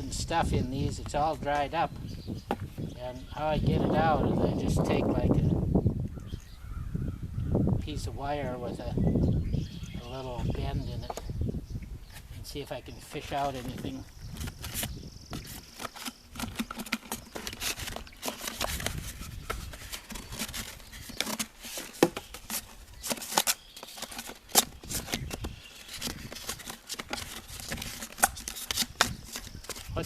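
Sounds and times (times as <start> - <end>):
wire scraping inside dried gourd: 13.2 - 30.0.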